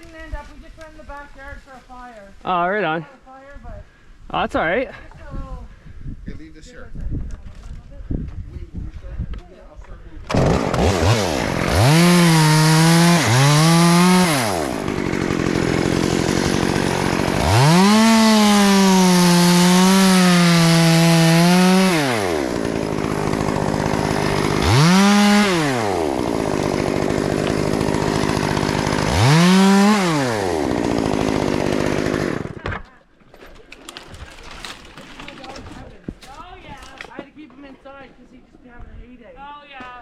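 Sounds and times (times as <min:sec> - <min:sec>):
chainsaw revving: 0:10.3 - 0:32.7.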